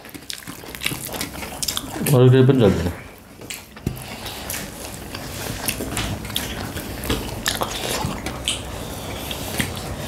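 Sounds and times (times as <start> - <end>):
wet mouth clicks and smacks: 0.0 - 2.1, 4.5 - 9.8
people chewing: 0.0 - 10.0.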